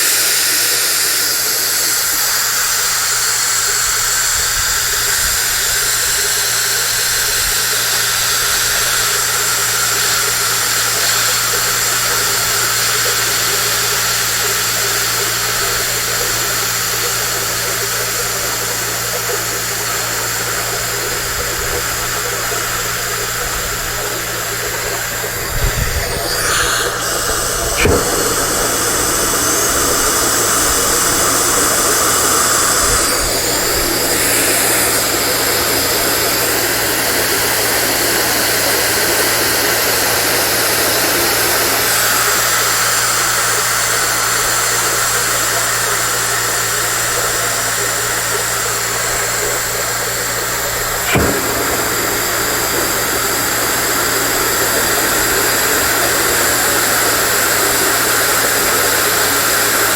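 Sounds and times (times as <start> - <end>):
air compressor motor hum: 0.0 - 59.9
compressed air hissing: 14.8 - 39.5, 48.5 - 59.9.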